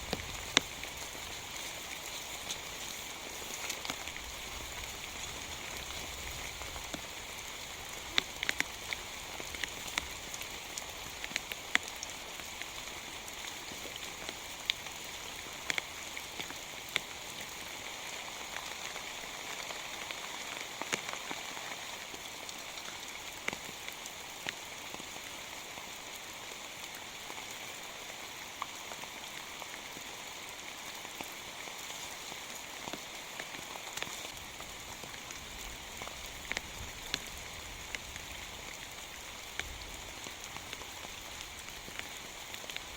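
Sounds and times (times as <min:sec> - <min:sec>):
heavy raindrops ticking: 0:00.0 - 0:17.1
steady rain hiss: 0:00.0 - 0:42.9.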